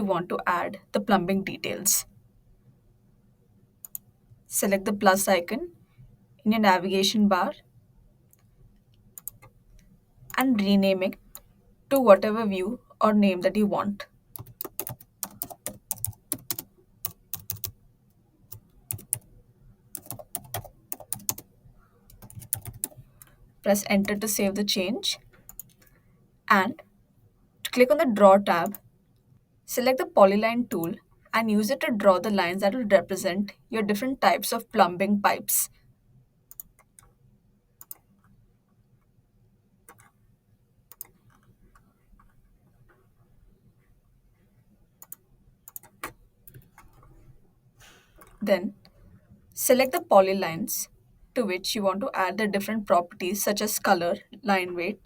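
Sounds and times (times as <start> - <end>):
typing on computer keyboard: 9.2 - 9.5, 14.3 - 17.8, 18.5 - 19.3, 19.9 - 21.5, 22.1 - 23.3, 25.5 - 25.9, 37.8 - 38.3, 39.9 - 40.2, 40.9 - 42.4, 45.0 - 47.1.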